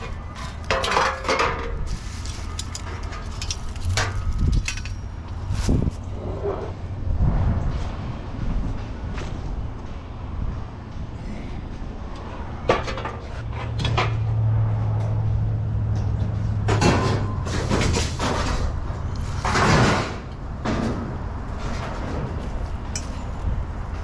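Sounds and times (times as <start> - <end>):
scrap metal knocks and clattering: 0.0 - 6.9, 12.6 - 23.4
low engine hum: 1.8 - 24.0.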